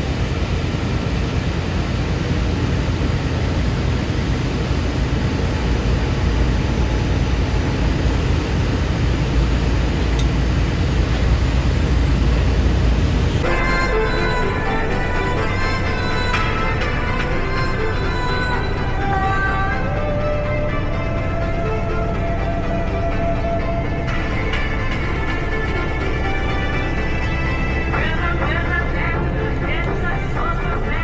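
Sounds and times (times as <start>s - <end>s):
truck engine and road noise: 0.0s - 31.0s
music: 13.4s - 31.0s.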